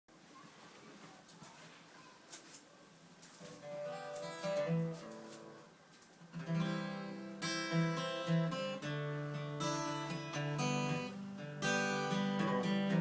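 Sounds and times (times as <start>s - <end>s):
acoustic guitar playing: 3.4s - 13.0s.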